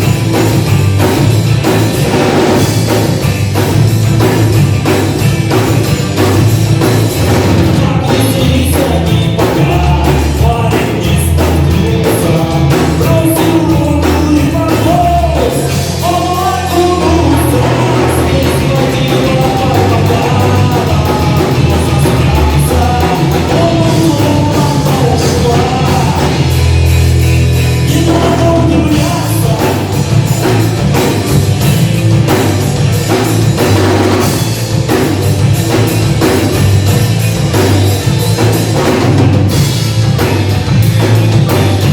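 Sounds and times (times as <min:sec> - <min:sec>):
drum kit: 0:00.0 - 0:41.9
rock band playing live: 0:00.0 - 0:41.9
person singing: 0:07.7 - 0:26.6, 0:27.8 - 0:30.2.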